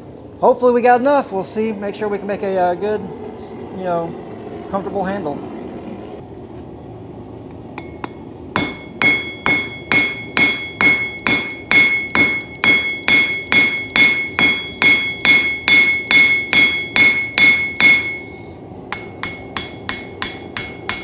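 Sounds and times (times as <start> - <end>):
hammer striking steel on anvil: 7.8 - 21.0.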